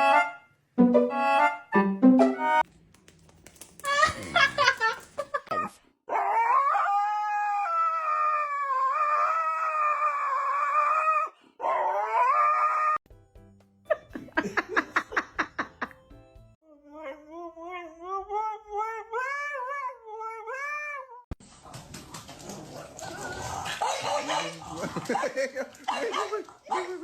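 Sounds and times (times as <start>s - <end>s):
dog howling: 6.1s - 13.0s, 22.6s - 25.2s.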